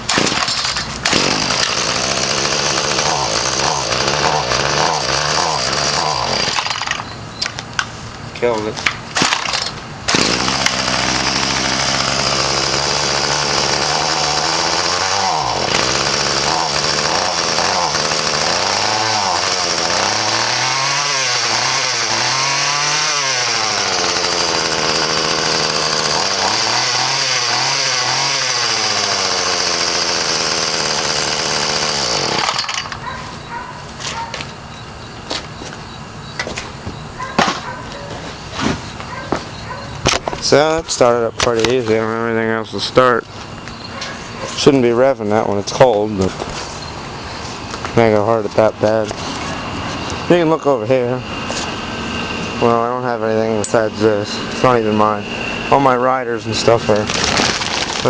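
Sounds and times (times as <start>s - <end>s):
string trimmer engine revving: 0.0s - 7.0s, 9.2s - 33.0s, 47.9s - 58.0s.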